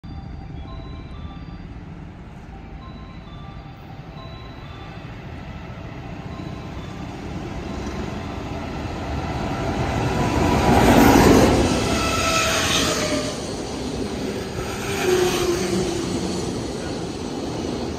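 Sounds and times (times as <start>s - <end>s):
freight train wheels rumbling on rail: 5.5s - 17.9s.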